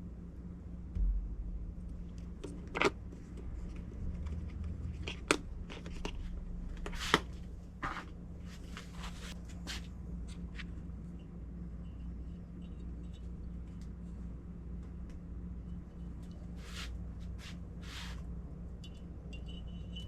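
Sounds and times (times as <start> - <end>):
steady low hum: 0.0 - 20.0
soft thump: 0.9 - 2.4
engine parts clicking and knocking: 1.0 - 8.0.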